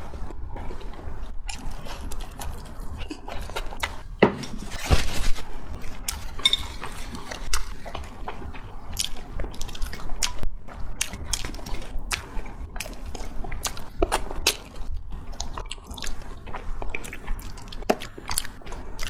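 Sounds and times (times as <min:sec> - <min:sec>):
wet chewing and lip-smacking: 0:00.0 - 0:04.2, 0:05.7 - 0:19.0.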